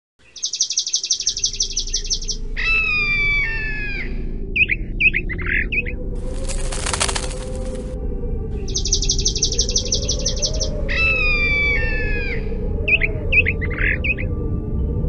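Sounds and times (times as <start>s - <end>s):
birds singing: 0.2s - 14.4s
rustling noise: 6.2s - 8.0s.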